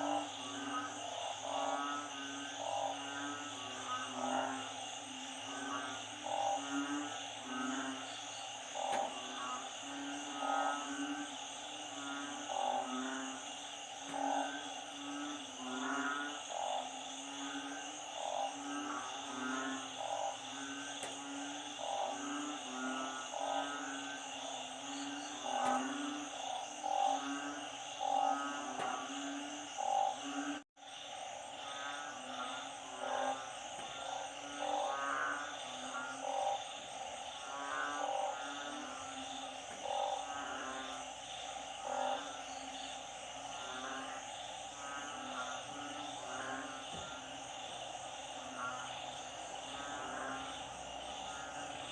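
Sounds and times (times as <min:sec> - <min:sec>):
frogs calling: 0:00.0 - 0:51.9.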